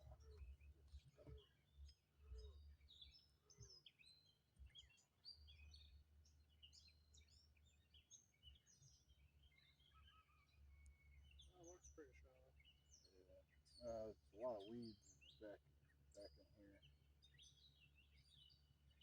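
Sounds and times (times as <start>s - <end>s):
birds chirping and whistling: 6.6s - 19.0s.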